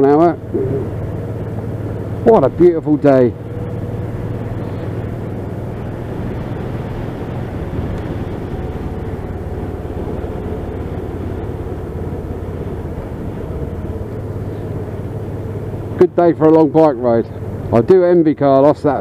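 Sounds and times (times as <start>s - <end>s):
motorcycle engine hum: 0.0s - 19.0s
wind rush: 3.8s - 14.1s.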